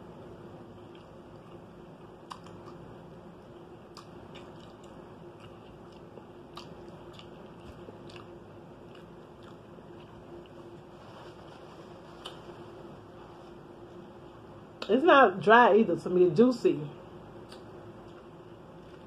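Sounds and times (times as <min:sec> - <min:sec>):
chewing and mouth smacks: 0:00.7 - 0:10.9, 0:12.2 - 0:12.6, 0:17.4 - 0:19.0.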